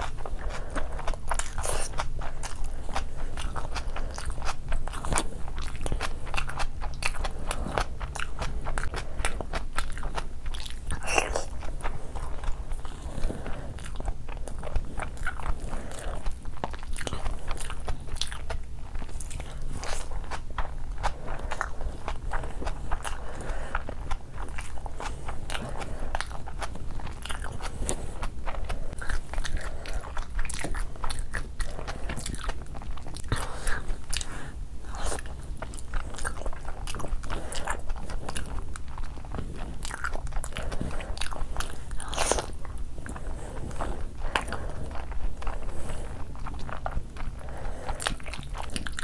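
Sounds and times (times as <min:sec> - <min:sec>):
low steady hum: 0:00.0 - 0:49.0
person chewing and biting: 0:00.0 - 0:49.0.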